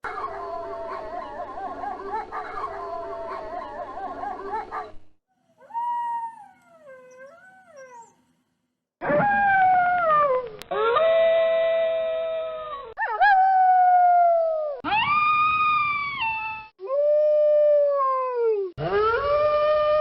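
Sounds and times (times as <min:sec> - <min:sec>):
wolves howling: 0:00.0 - 0:05.0.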